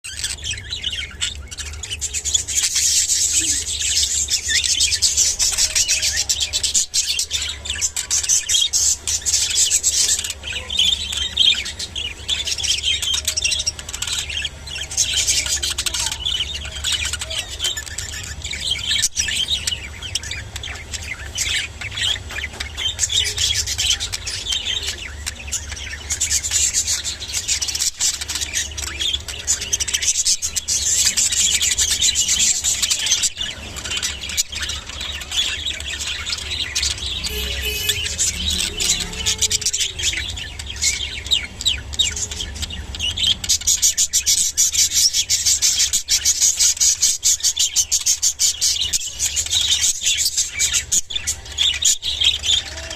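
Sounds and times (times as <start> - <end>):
budgerigars chattering: 0.1 - 52.9.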